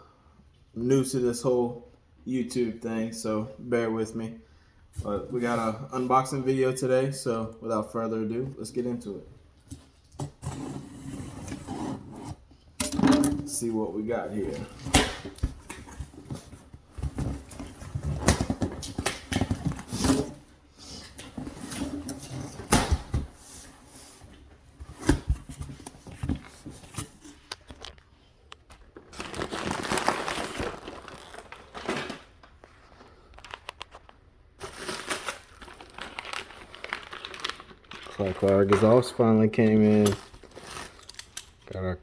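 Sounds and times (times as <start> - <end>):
packaging tearing and rustling: 28.8 - 39.1, 39.8 - 41.6.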